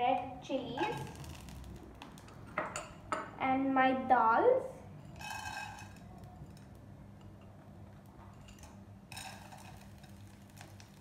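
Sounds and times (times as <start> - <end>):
lentils frying in hot oil: 0.5 - 2.9, 5.1 - 7.0, 8.0 - 11.0.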